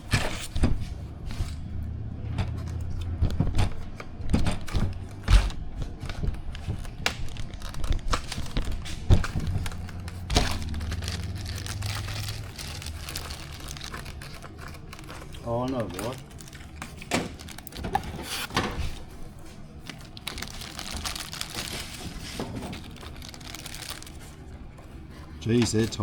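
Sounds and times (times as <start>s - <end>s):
steady low hum: 0.0s - 26.0s
plastic bags crinkling: 4.9s - 26.0s.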